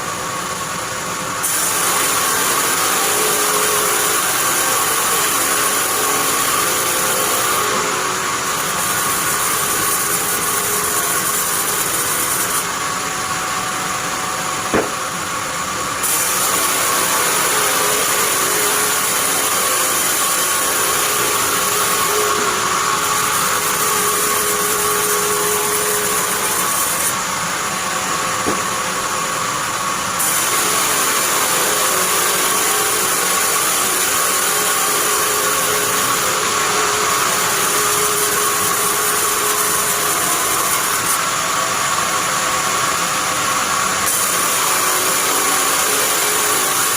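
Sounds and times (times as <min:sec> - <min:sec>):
band sawmill sawing: 0:00.0 - 0:46.9
sharp knock: 0:14.7 - 0:15.0, 0:28.4 - 0:28.8.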